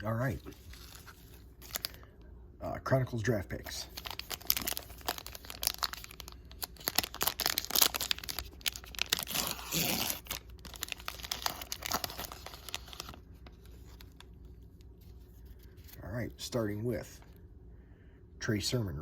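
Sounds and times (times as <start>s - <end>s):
plastic wrapper tearing and crinkling: 0.3s - 2.0s, 3.6s - 14.3s.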